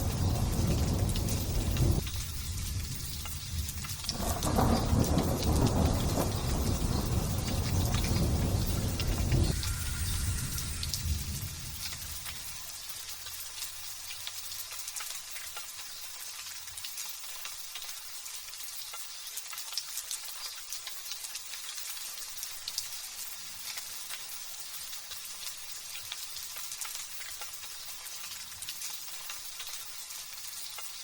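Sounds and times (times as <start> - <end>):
thunder rumble: 0.0 - 12.6
light drizzle falling: 0.0 - 31.0.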